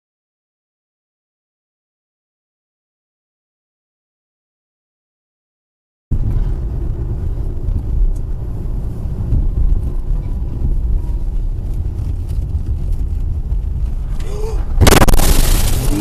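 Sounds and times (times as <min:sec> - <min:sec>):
vehicle road and engine rumble: 0:06.1 - 0:16.0.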